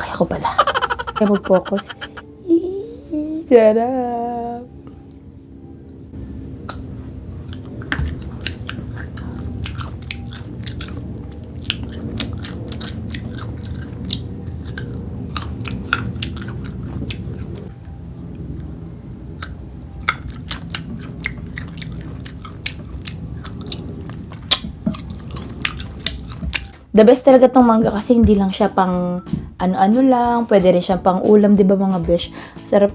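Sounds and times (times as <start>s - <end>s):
steady low hum: 0.0s - 30.8s
crunchy chewing of mango: 6.6s - 26.8s.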